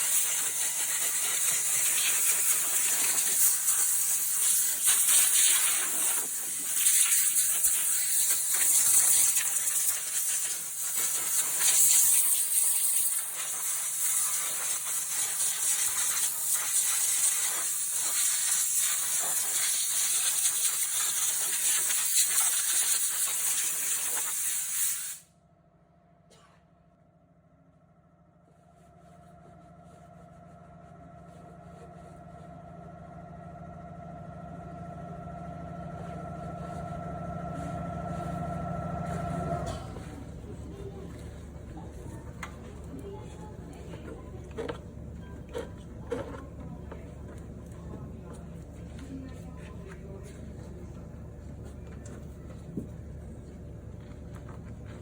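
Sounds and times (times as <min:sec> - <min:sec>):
high-pressure water jet hissing: 0:00.0 - 0:25.2.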